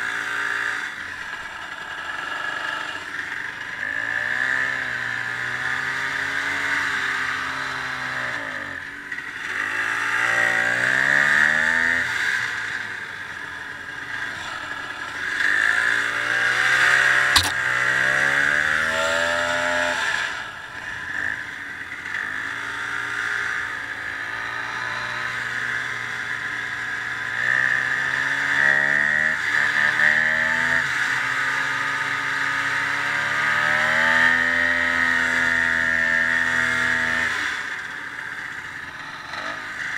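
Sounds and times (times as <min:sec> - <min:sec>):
sharp click: 0:17.4 - 0:17.7.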